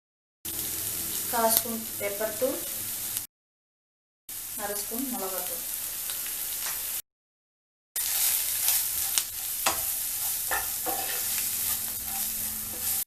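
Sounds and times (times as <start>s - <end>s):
vegetables sizzling in oil: 0.5s - 3.3s, 4.3s - 7.0s, 8.0s - 13.0s
spatula scraping and knocking pan: 8.0s - 13.0s.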